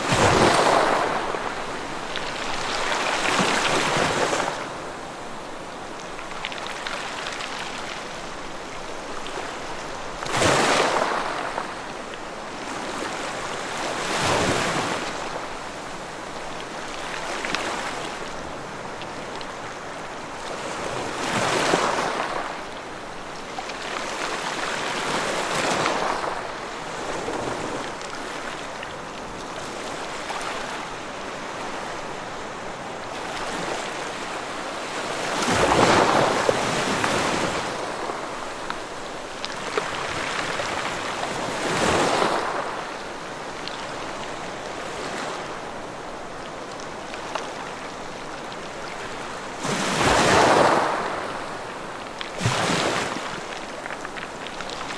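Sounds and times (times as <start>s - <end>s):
ocean waves breaking on shore: 0.0s - 54.9s.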